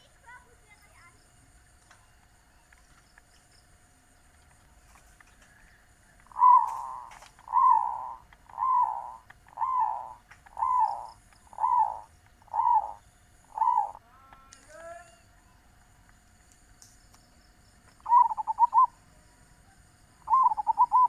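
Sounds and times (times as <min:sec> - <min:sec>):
dove cooing: 0:05.5 - 0:14.1, 0:18.0 - 0:19.0, 0:20.2 - 0:21.0.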